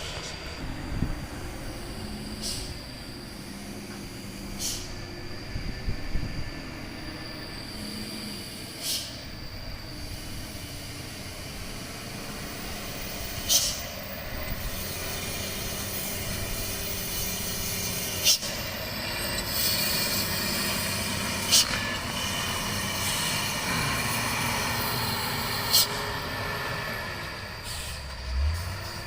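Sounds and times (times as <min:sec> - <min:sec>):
high brake squeal: 0:00.0 - 0:29.0
truck engine rumble: 0:00.0 - 0:29.0
air brake hisses: 0:02.3 - 0:03.6, 0:04.3 - 0:05.2, 0:07.6 - 0:11.9, 0:12.9 - 0:18.7, 0:25.3 - 0:28.8.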